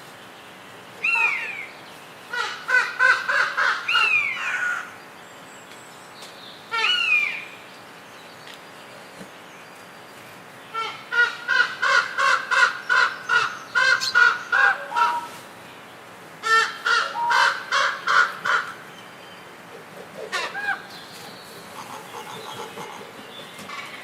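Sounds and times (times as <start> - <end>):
bird harsh repeated calls: 10.7 - 15.4, 16.4 - 24.0.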